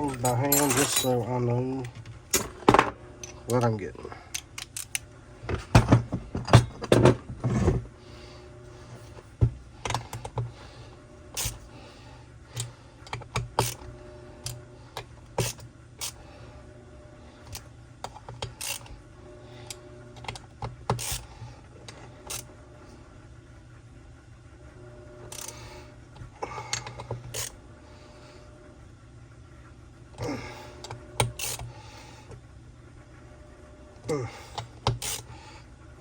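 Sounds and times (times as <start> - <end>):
metal tools clinking on metal: 0.0 - 1.5.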